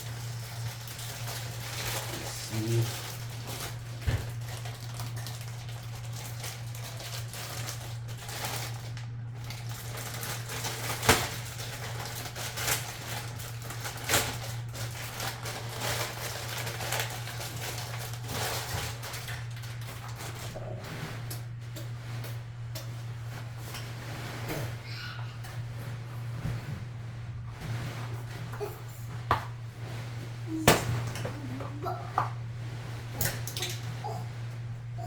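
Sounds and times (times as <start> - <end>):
steady low hum: 0.0 - 35.0
packaging rustling and clicking: 0.2 - 20.6.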